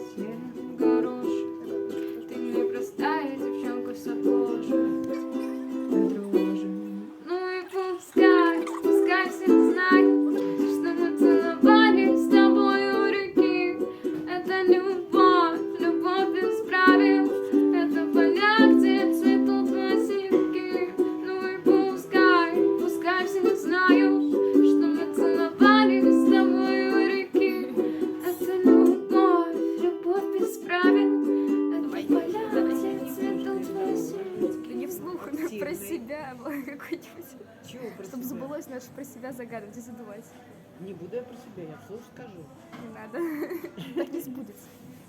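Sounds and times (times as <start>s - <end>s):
ukulele strummed chords: 0.0s - 35.8s.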